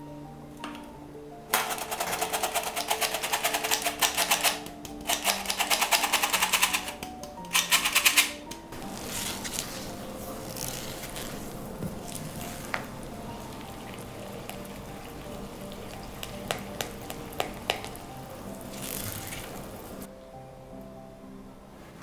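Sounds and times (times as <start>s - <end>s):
soft background music: 0.0s - 22.0s
utensil beating mixture in bowl: 1.6s - 7.7s, 8.8s - 20.1s.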